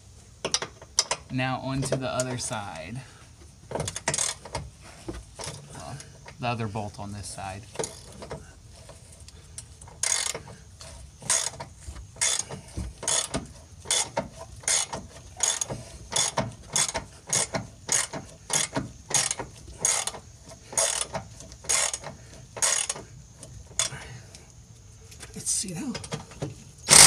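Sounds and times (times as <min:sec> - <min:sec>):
socket ratchet clicking: 0:20.8 - 0:23.0.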